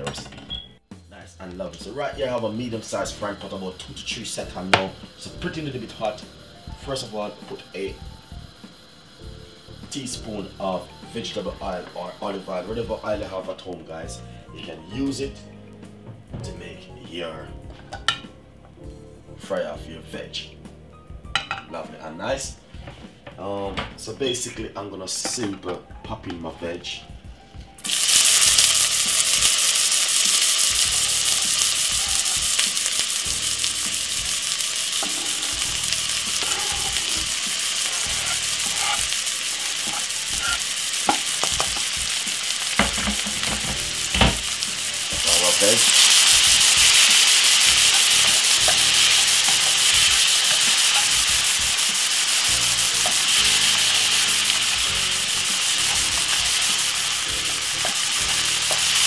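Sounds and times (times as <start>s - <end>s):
vegetables sizzling in oil: 1.6s - 15.8s, 27.8s - 59.0s
spatula scraping and tapping pan: 35.0s - 47.0s, 57.5s - 59.0s.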